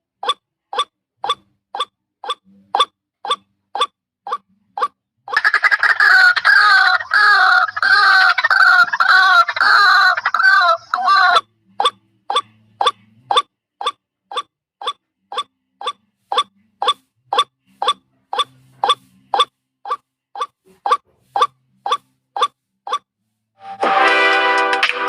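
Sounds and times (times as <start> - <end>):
harsh rhythmic bird calls: 0.2 - 23.0.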